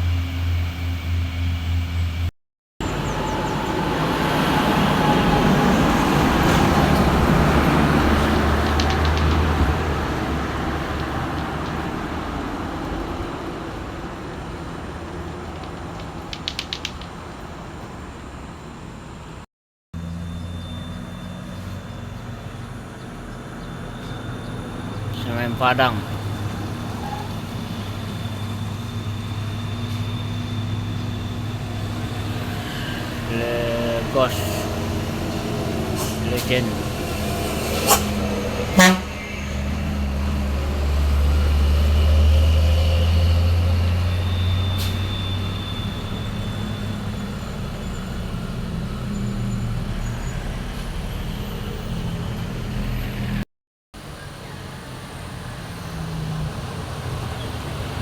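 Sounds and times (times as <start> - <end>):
thin high whine: 0.0 - 12.2, 20.0 - 50.4
truck diesel engine crawling past: 0.0 - 19.4, 20.0 - 53.4, 54.0 - 58.0.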